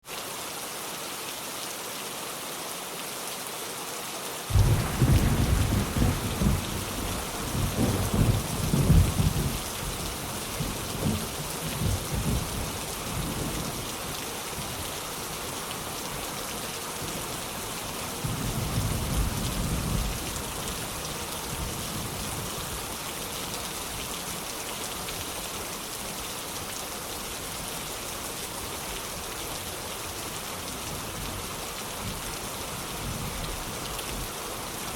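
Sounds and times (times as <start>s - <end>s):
heavy rain: 0.0s - 34.9s
thunder rumbling: 4.5s - 13.6s.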